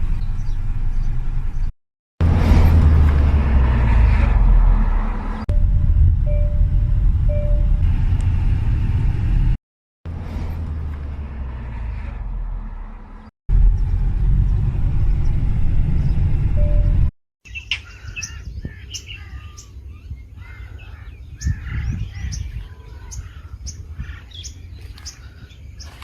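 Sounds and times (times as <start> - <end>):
storm rumble: 0.0 - 12.8, 13.5 - 17.1
short electronic beeps: 5.5 - 7.8, 16.6 - 17.1.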